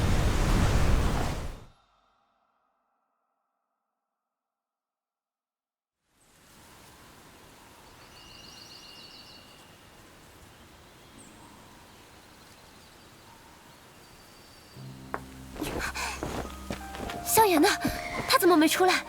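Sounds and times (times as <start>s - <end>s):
steady low hiss: 6.2s - 18.8s.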